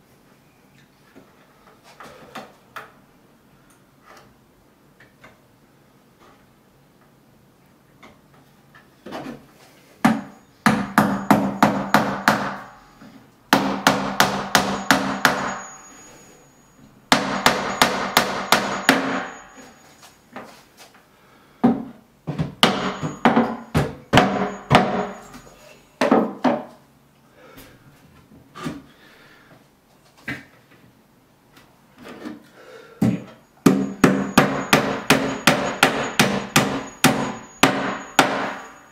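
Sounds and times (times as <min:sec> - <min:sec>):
hammer striking: 0:10.0 - 0:12.8, 0:13.5 - 0:16.1, 0:17.1 - 0:19.8, 0:22.6 - 0:26.3, 0:33.0 - 0:38.9.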